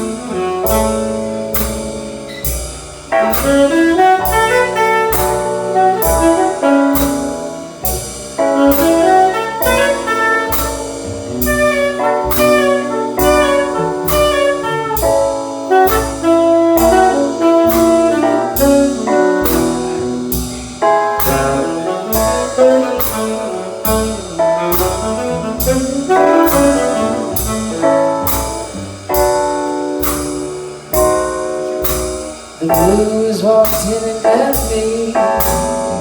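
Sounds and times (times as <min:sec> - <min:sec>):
saxophone solo: 0:00.0 - 0:01.6, 0:03.2 - 0:28.7
jazz band playing: 0:00.0 - 0:36.0.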